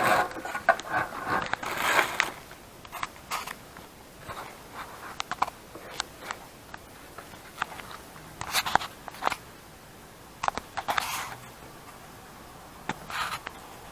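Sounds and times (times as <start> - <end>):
crinkly crunching rustles: 0.0 - 9.4.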